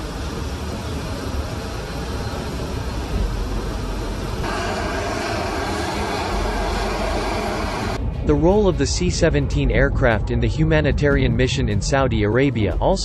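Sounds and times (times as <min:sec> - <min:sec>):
jet engines running: 0:00.0 - 0:10.2.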